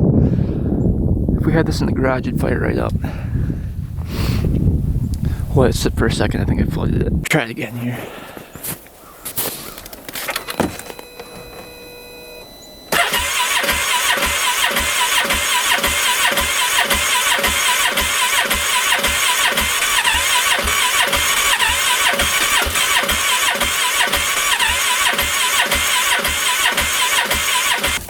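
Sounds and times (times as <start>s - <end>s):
starter clicks: 9.6s - 11.9s, 12.9s - 28.0s
engine cranking on electric starter: 10.0s - 28.0s.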